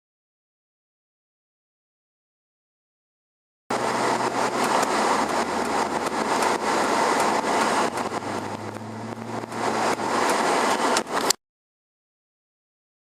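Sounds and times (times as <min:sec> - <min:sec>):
car engine and road noise: 0:03.7 - 0:11.4
scattered clicks: 0:04.6 - 0:06.6.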